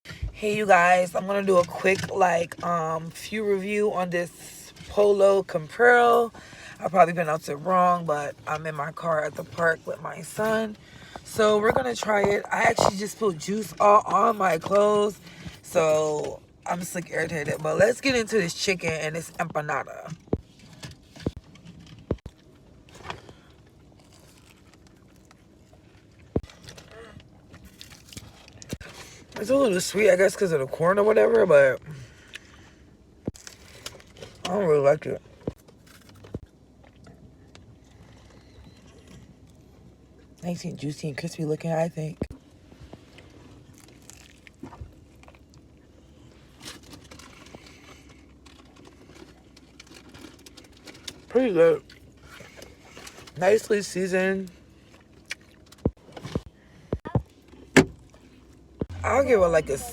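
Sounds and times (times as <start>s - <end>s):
crunching fried chicken: 22.1s - 29.4s, 43.1s - 52.5s
food wrapper crinkling: 23.9s - 25.5s, 46.6s - 51.3s.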